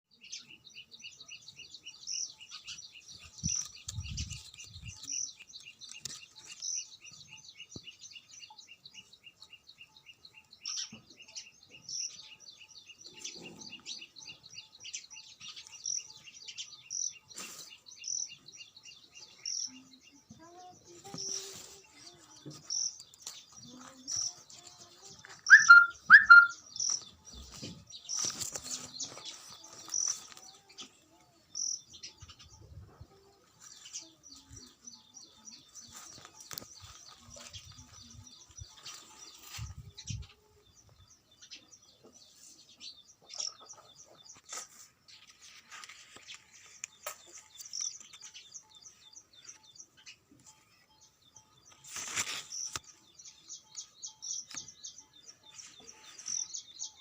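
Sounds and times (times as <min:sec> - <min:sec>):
birds chirping: 0:00.1 - 0:57.0
loud short bird calls: 0:25.5 - 0:26.6.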